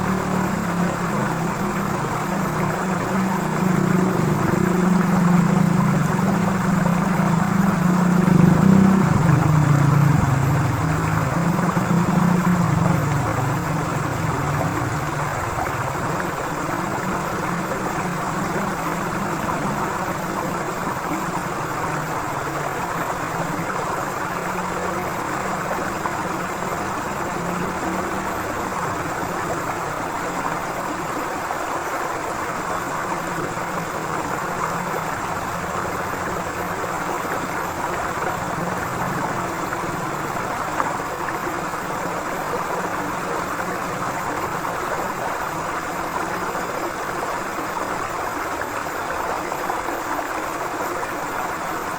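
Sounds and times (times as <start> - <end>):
low hum: 0.0 - 30.4
river water rushing: 0.0 - 51.9.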